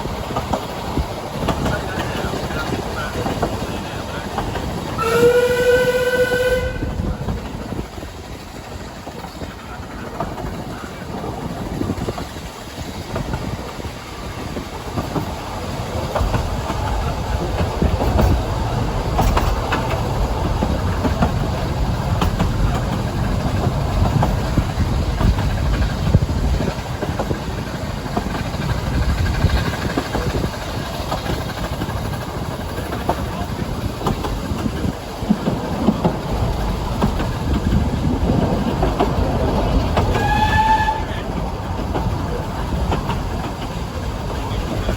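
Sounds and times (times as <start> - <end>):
train wheels clattering over rails: 0.0 - 44.9.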